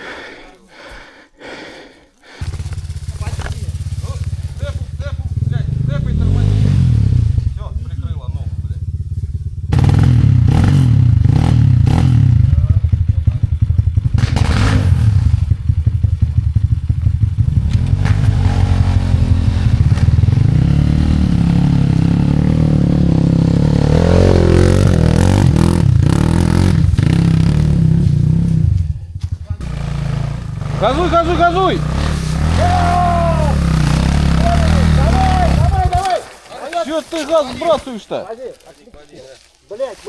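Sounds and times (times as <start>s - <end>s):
bike hitting rock: 2.4s - 5.0s, 32.2s - 38.2s
motorcycle engine revving: 2.4s - 36.2s.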